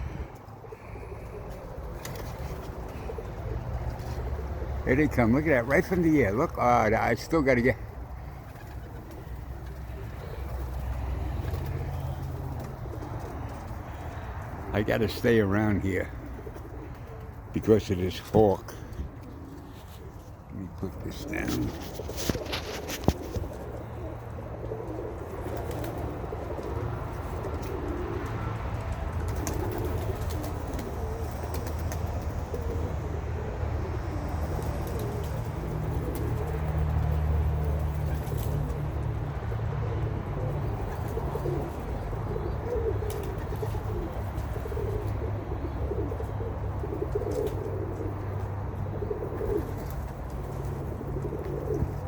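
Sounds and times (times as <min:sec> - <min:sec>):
pigeons cooing: 0:00.0 - 0:52.0.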